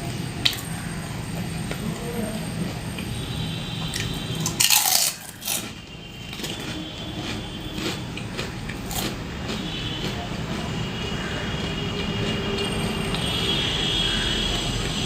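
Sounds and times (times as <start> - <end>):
chewing with small clicks: 3.8 - 10.8
crunching bite of fried snacks: 3.9 - 10.2.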